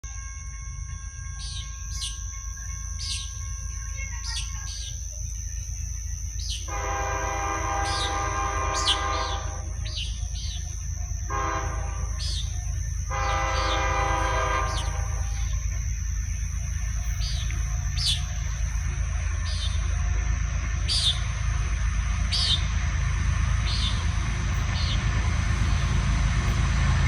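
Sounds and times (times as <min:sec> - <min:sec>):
locomotive air horn blasts: 0:06.7 - 0:10.2, 0:11.1 - 0:15.8.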